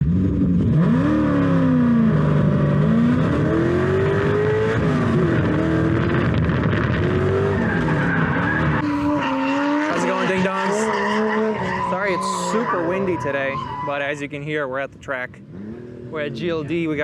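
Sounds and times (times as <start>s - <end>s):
car engine revving hard: 0.0s - 13.8s, 15.5s - 17.0s
tyre squeal: 7.5s - 14.2s.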